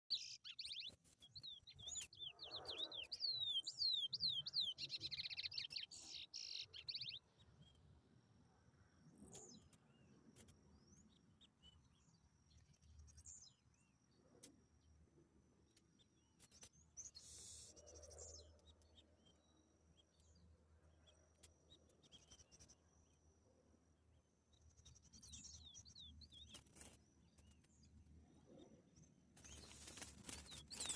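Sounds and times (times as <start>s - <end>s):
faint bird chirps: 0.0s - 30.9s
finch singing whistled notes: 0.1s - 7.2s.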